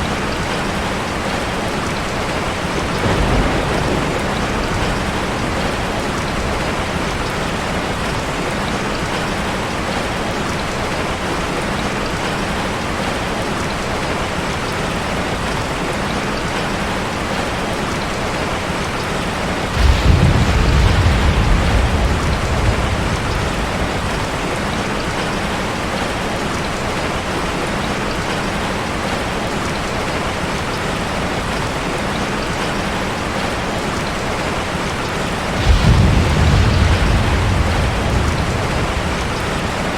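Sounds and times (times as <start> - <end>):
waterfall rushing: 0.0 - 39.9
low rumble: 35.6 - 39.9.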